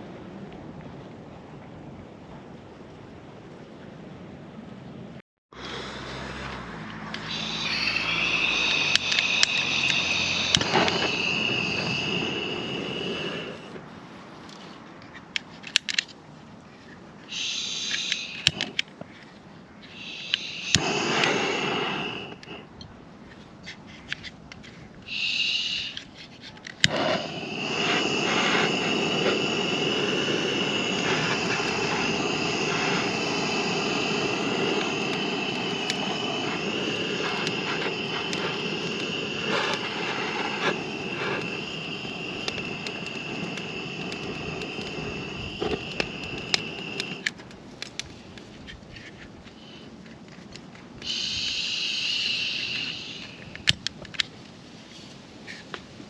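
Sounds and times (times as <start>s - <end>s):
rushing hiss with whistling tone: 7.0s - 14.8s, 17.2s - 19.0s, 19.8s - 22.8s, 25.0s - 48.6s, 49.4s - 50.0s, 50.9s - 55.8s
sharp click: 17.8s - 18.9s.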